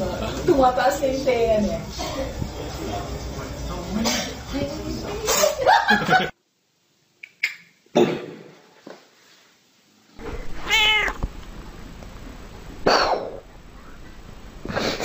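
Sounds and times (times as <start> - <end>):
cat meowing: 10.2 - 11.3.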